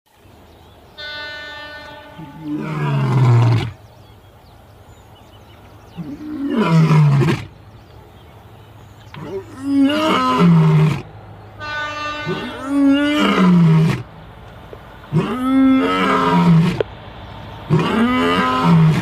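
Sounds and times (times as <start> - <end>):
steady horn-like tone: 1.0 - 2.6, 11.6 - 12.8
loud growling roars: 2.2 - 3.8, 6.0 - 7.5, 9.2 - 11.1, 12.3 - 14.1, 15.1 - 16.8, 17.7 - 19.0.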